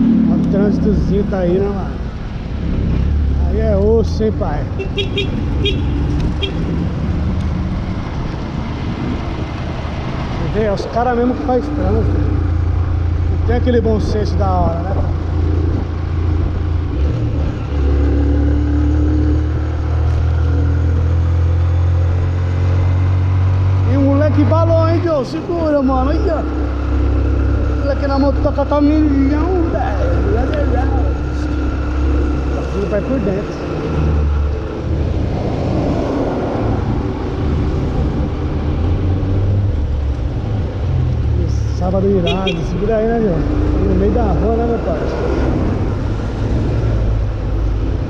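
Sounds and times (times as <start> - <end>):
vehicle engine rumbling: 0.0 - 48.0
vehicle engine running: 20.1 - 35.0.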